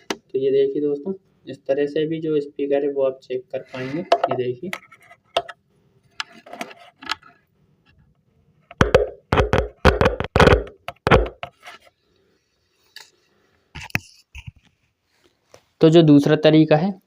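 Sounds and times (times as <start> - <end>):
loudspeaker crackling and popping: 8.8 - 11.5.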